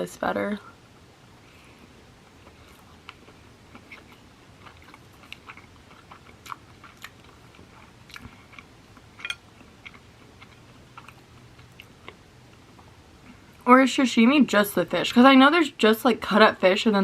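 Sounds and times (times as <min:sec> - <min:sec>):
wet chewing mouth clicks: 0:02.5 - 0:08.7.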